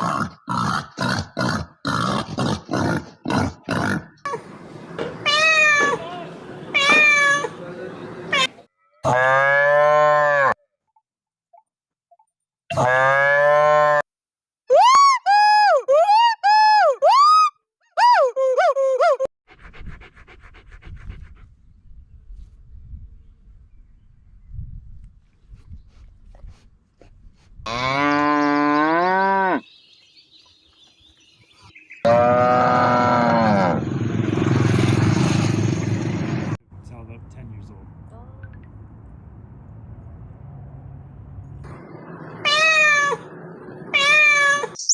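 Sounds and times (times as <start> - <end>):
cow mooing: 9.0 - 10.6, 12.7 - 14.0, 27.7 - 29.6, 32.1 - 33.9.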